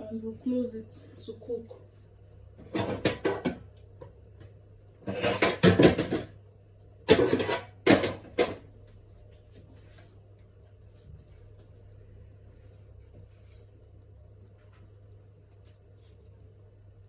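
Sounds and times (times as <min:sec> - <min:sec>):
cooking pot and utensils clattering: 0:05.0 - 0:06.3, 0:07.1 - 0:08.6.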